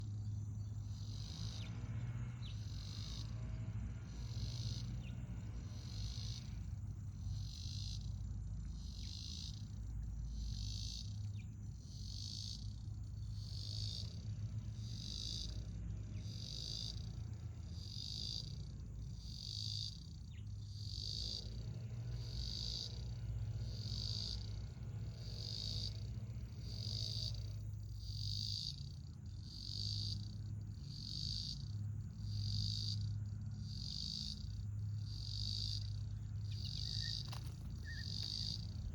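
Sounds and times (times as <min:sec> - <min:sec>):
insect chirping: 0:00.0 - 0:38.9.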